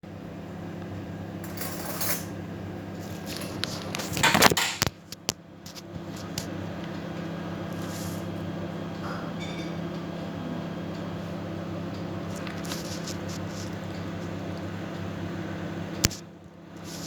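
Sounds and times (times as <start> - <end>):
steady low hum: 0.0 - 17.0
objects knocking and rattling: 3.2 - 5.0.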